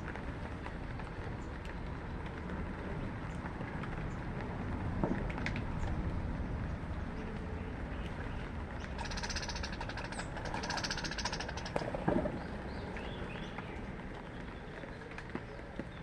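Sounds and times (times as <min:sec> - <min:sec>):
bird chirps: 0:08.3 - 0:11.8
bird buzzy trills: 0:08.8 - 0:11.8.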